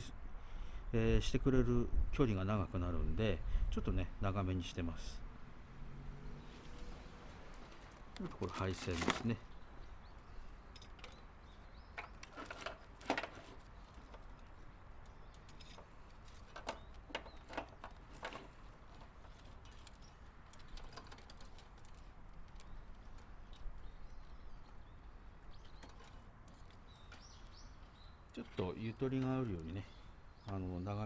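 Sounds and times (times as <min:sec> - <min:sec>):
hands handling wiring and parts: 0:06.5 - 0:30.6.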